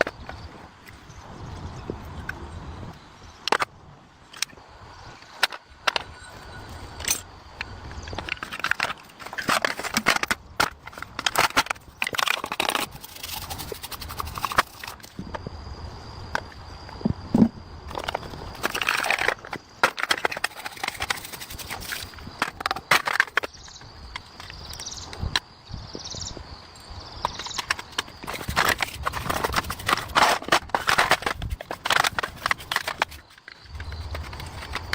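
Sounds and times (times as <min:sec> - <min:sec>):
scraping and rattling: 0:08.2 - 0:15.2, 0:17.4 - 0:23.5, 0:27.4 - 0:34.9.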